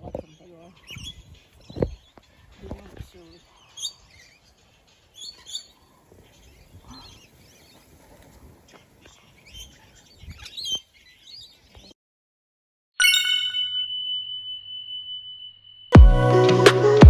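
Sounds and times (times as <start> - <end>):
parrots chirping: 0.4 - 2.2, 3.2 - 11.6.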